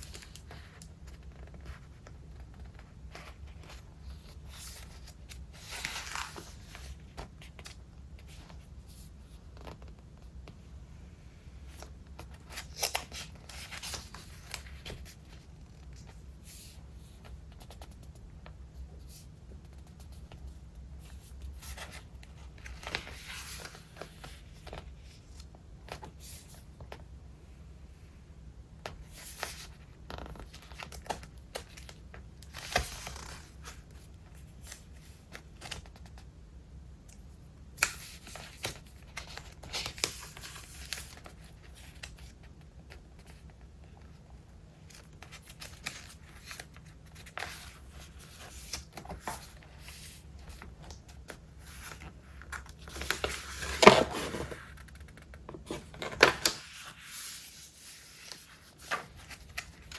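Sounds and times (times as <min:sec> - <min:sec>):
paper pages turning: 0:00.0 - 0:10.3, 0:11.7 - 0:18.1, 0:21.1 - 0:26.4, 0:28.9 - 0:36.1, 0:44.9 - 0:59.9.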